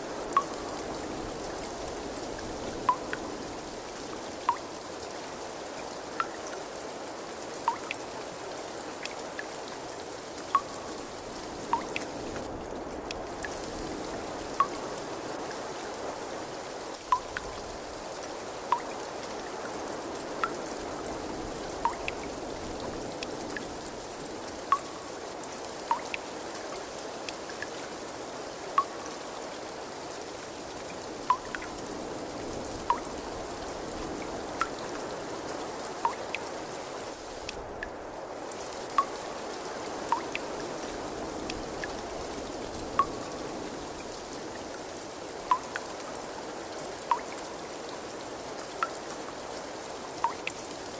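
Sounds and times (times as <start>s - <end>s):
water trickling: 0.0s - 50.9s
drops plinking into water: 2.8s - 3.2s, 10.5s - 10.8s, 11.7s - 12.1s, 17.1s - 17.5s, 21.8s - 22.2s, 25.9s - 26.2s, 31.3s - 31.7s, 43.0s - 43.3s, 45.5s - 45.8s, 47.1s - 47.3s.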